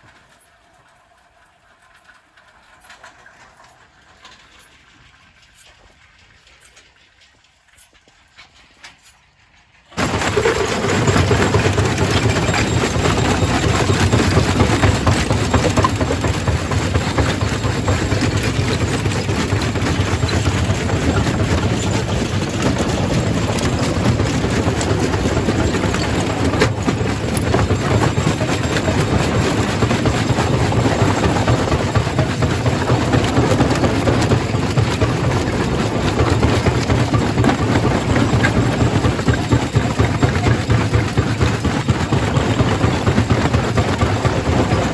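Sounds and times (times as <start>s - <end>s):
rock crusher running: 10.0s - 44.9s.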